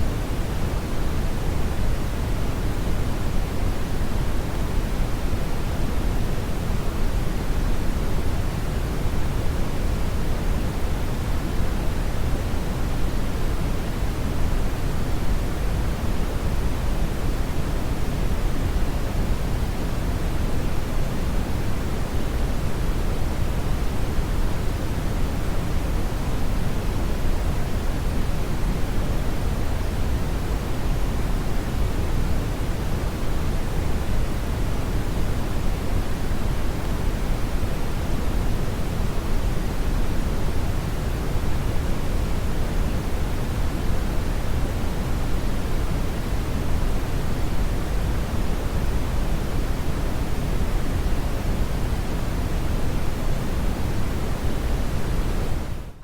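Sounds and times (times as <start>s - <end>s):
brown noise rushing hiss: 0.0s - 56.0s.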